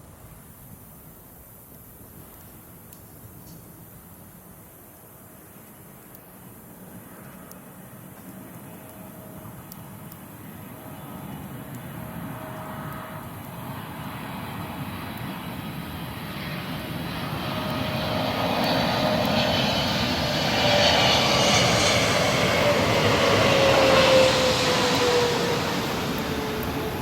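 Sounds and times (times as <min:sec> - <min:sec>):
jet airliner flying overhead: 0:05.8 - 0:27.0.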